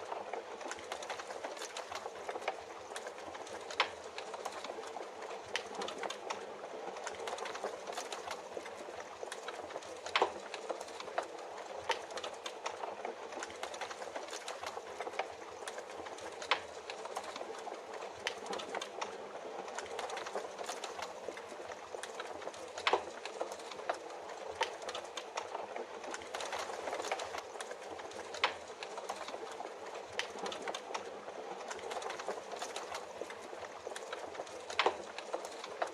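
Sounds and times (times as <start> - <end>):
log fire crackling and popping: 0.0 - 35.9.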